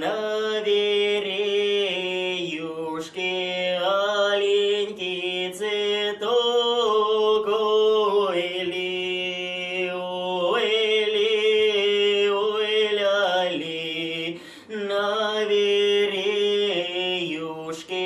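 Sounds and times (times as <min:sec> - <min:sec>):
man singing a cappella: 0:00.0 - 0:18.0
quick breath: 0:14.4 - 0:14.7.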